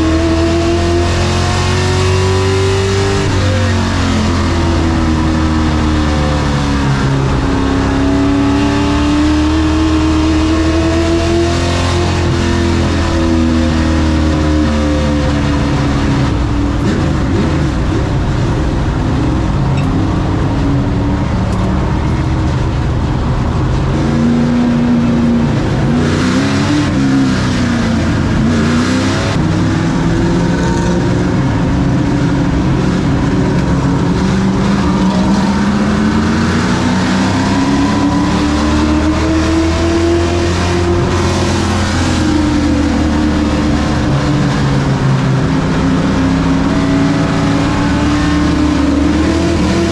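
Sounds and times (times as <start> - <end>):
truck engine revving: 0.0 - 49.9.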